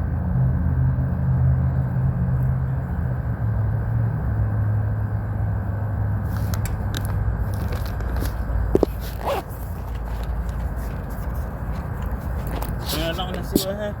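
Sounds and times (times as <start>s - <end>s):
handling clicks and scrapes: 6.3s - 13.8s.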